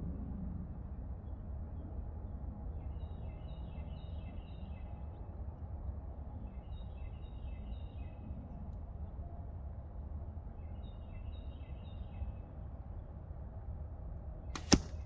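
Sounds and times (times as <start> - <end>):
songbird singing: 2.8 - 5.4, 6.4 - 8.4, 10.5 - 12.6.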